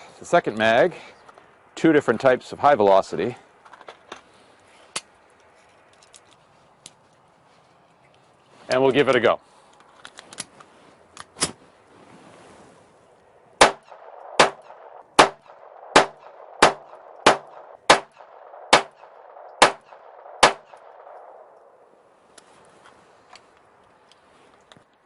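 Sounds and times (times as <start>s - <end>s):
pistol shots: 13.6s - 21.4s.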